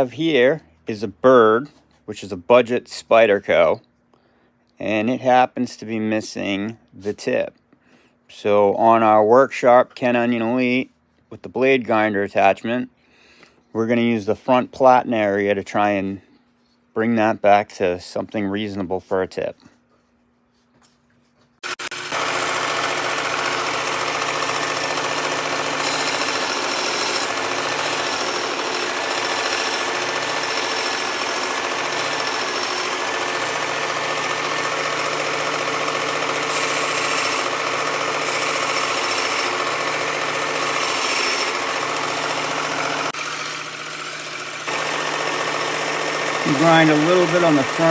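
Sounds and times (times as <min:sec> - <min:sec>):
belt sharpener running: 0:21.6 - 0:47.9.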